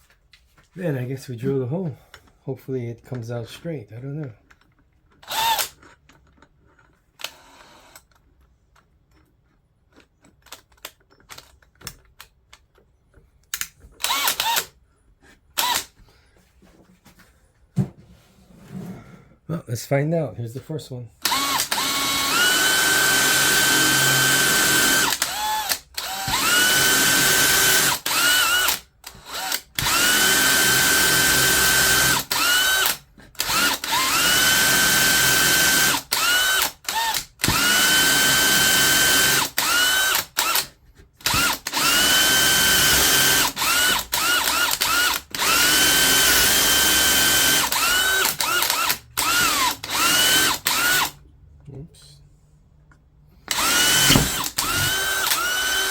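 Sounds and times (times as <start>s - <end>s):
drill trigger blips: 5.2s - 5.8s, 13.6s - 14.7s, 15.6s - 15.9s, 21.2s - 51.2s, 53.5s - 55.9s
electric drill whining: 5.2s - 5.8s, 7.2s - 8.0s, 14.0s - 14.8s, 15.6s - 16.0s, 21.2s - 51.2s, 53.5s - 55.9s.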